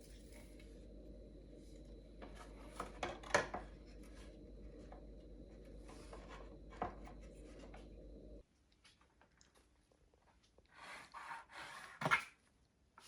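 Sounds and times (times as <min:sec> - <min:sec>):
low hum: 0:00.0 - 0:08.4.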